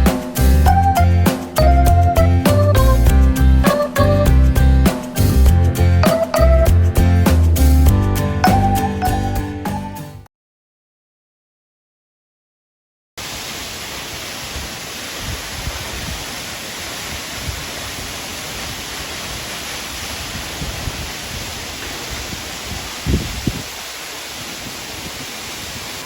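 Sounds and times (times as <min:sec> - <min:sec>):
waterfall rushing: 0:13.2 - 0:26.0
wind thumps on microphone: 0:20.0 - 0:26.0.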